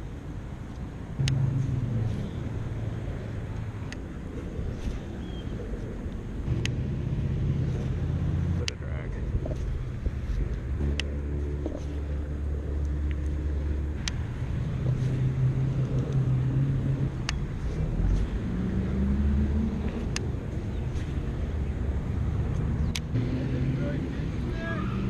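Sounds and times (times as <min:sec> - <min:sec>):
vehicle engine running: 0:00.0 - 0:24.6
sharp clicks: 0:00.7 - 0:01.4, 0:22.6 - 0:23.2.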